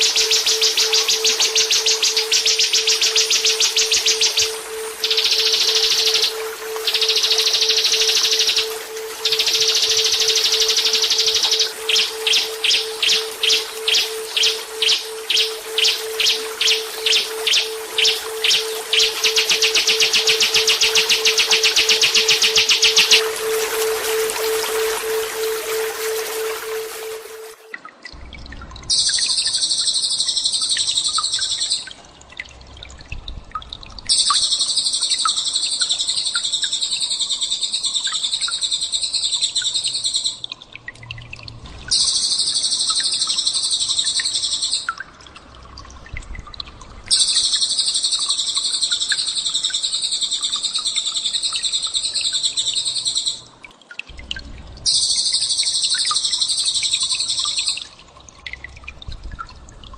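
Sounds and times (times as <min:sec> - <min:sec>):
shrill songbird trill: 0:00.0 - 0:27.6
faint bird chirps: 0:00.0 - 0:27.8.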